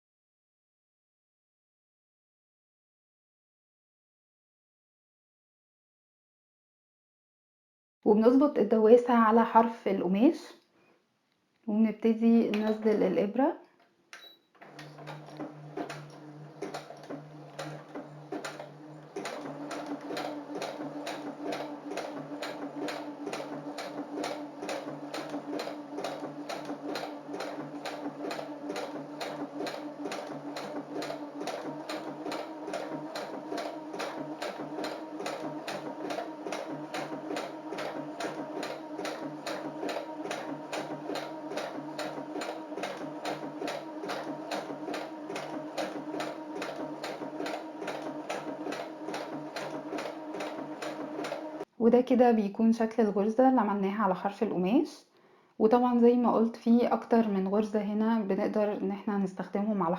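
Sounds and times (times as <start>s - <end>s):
sewing machine motor hum: 12.5s - 13.1s, 14.6s - 51.7s
sewing needle clicks: 14.1s - 51.6s.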